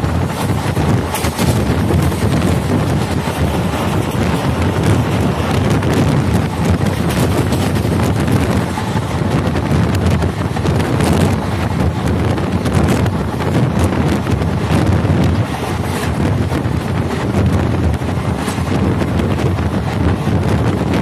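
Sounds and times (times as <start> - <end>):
train coach rumbling on track: 0.0 - 21.0
wheels clicking and clattering: 0.0 - 21.0
wind buffeting microphone: 0.0 - 21.0.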